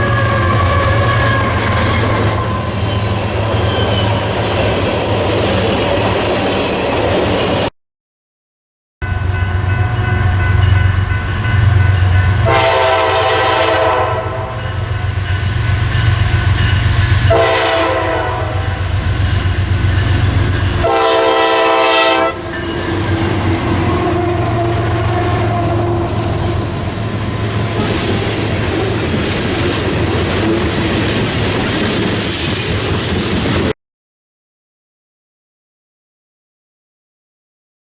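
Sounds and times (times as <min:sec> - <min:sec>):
locomotive horn blasts: 0:00.0 - 0:02.8, 0:11.7 - 0:15.1, 0:17.2 - 0:19.0, 0:20.8 - 0:22.8, 0:23.8 - 0:26.8
train engine rumbling: 0:00.0 - 0:07.7, 0:09.0 - 0:33.8
train wheels clicking over rail joints: 0:24.7 - 0:33.7.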